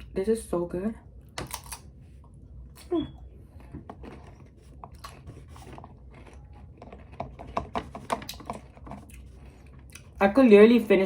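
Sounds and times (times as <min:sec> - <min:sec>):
crunchy chewing: 0:02.7 - 0:10.2.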